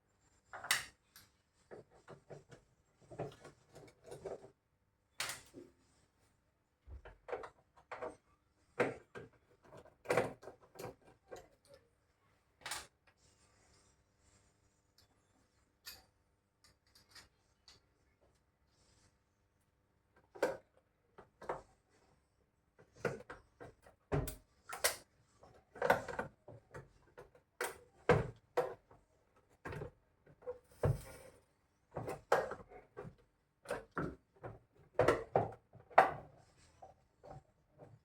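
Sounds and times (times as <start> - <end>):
tools and parts clicking and knocking: 8.8 - 11.9, 15.8 - 18.0, 22.8 - 31.2.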